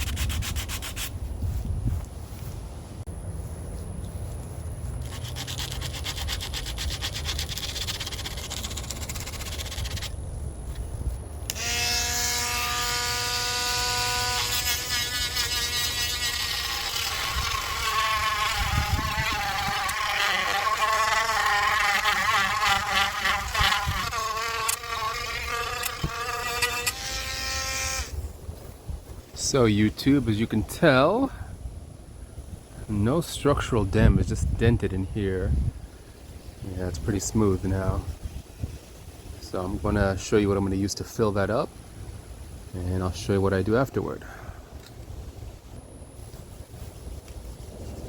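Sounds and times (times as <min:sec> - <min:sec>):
rasping hand sanding: 0:00.0 - 0:01.3, 0:05.0 - 0:10.1, 0:11.6 - 0:28.1
electric sander whining on metal: 0:11.5 - 0:28.2.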